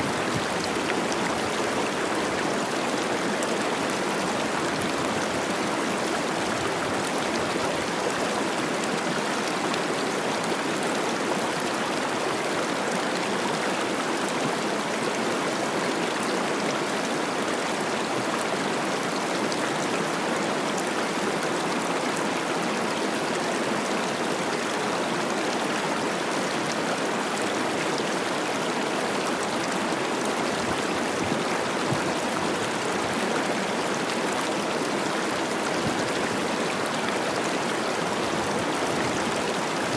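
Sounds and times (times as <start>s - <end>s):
water rushing over rocks: 23.9s - 39.9s.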